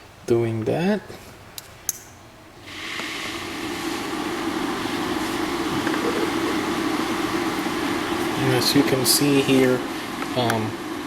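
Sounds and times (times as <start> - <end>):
motor hum: 3.6 - 10.0.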